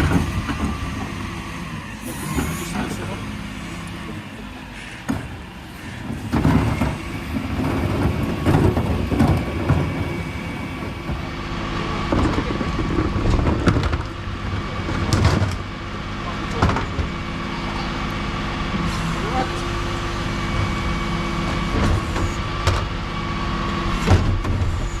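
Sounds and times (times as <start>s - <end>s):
knocks and clatters: 0.0s - 11.4s
refuse truck engine running: 0.0s - 12.7s.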